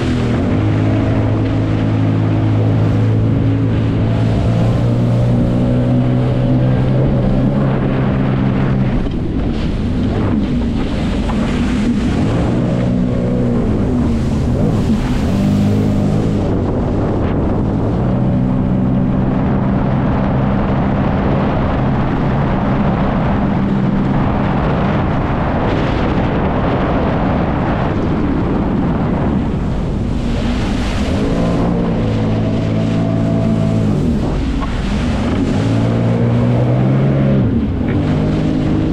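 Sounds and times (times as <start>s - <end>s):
water spray rushing: 0.0s - 19.1s
jet ski engine revving: 0.0s - 38.9s
wind on microphone: 0.0s - 38.9s.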